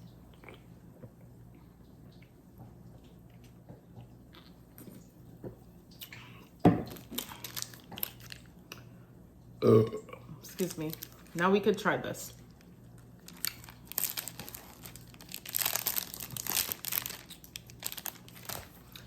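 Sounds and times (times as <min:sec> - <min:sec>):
person burping: 0:09.6 - 0:10.4.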